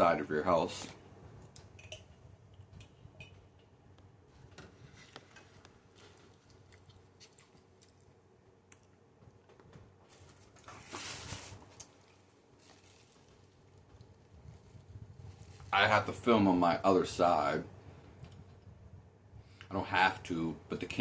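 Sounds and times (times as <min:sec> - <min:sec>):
low room hum: 0:00.0 - 0:21.0
person chewing: 0:05.1 - 0:09.1
rustling: 0:09.6 - 0:15.8.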